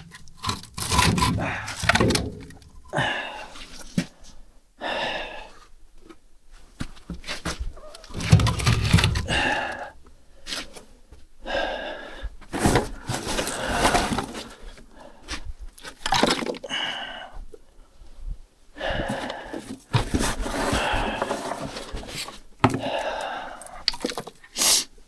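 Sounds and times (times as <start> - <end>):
split wood knocking and scraping: 0.0 - 3.0, 7.1 - 9.9, 19.9 - 23.0.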